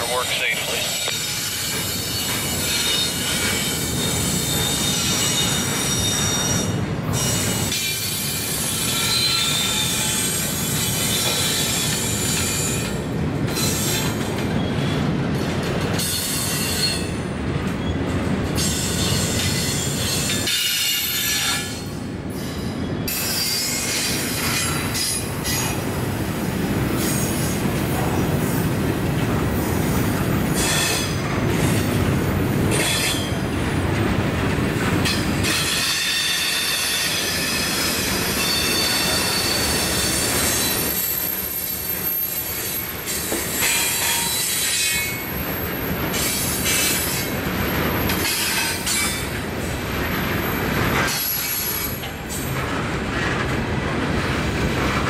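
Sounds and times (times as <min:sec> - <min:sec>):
train wheels rumbling on rail: 0:00.0 - 0:55.0
high ringing wheel squeal: 0:35.7 - 0:45.2.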